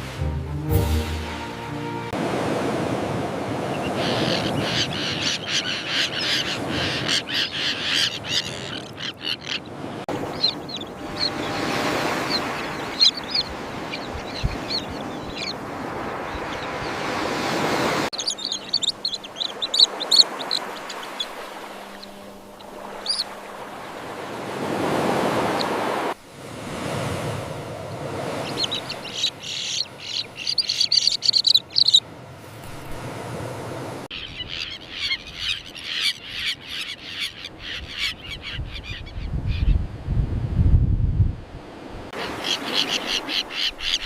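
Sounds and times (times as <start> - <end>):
terns calling: 3.7 - 17.3, 18.0 - 26.2, 27.9 - 32.0, 34.1 - 39.8, 42.2 - 44.0.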